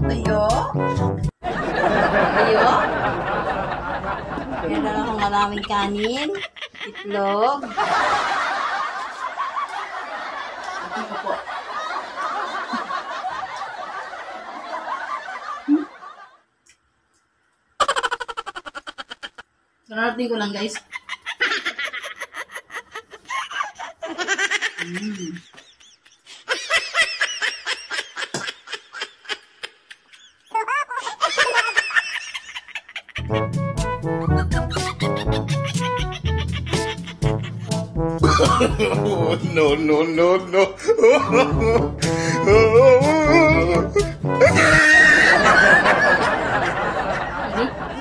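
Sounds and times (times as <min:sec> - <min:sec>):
music: 0:00.0 - 0:01.3, 0:33.2 - 0:39.9, 0:41.2 - 0:44.8
laugh track: 0:01.4 - 0:16.5, 0:17.8 - 0:19.5, 0:20.6 - 0:48.0.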